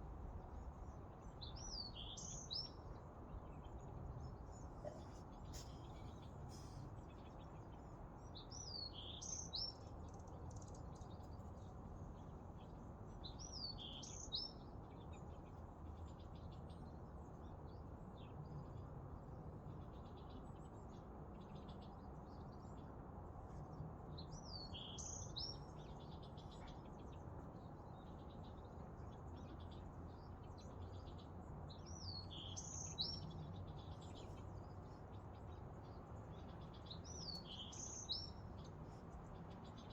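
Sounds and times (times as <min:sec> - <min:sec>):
faint bird chirps: 0:04.3 - 0:07.4.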